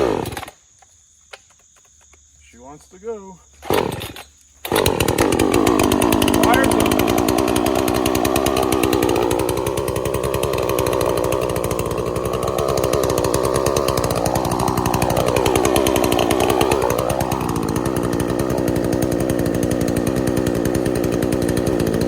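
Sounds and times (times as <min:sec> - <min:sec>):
chainsaw running: 0:00.0 - 0:00.6, 0:03.5 - 0:22.0.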